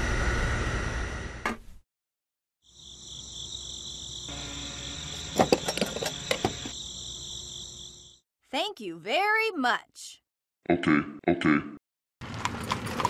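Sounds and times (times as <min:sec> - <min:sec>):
crickets chirring: 0:02.6 - 0:08.2.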